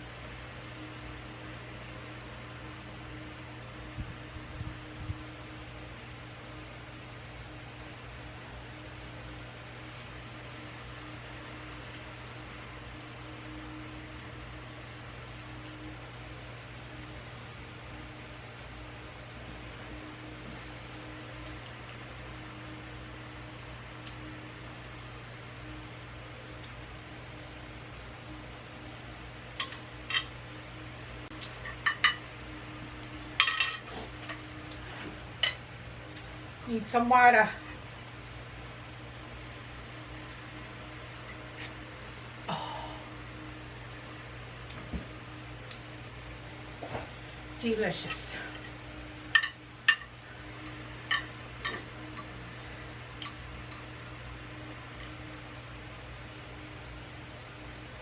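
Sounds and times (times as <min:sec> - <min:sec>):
faint steady hum: 0:00.0 - 0:58.0
utensils clinking against a dish: 0:33.4 - 0:33.9.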